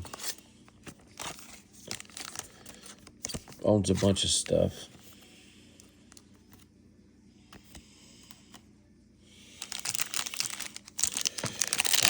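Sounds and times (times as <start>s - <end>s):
foil wrapper crinkling: 0.0s - 3.5s, 9.5s - 12.0s.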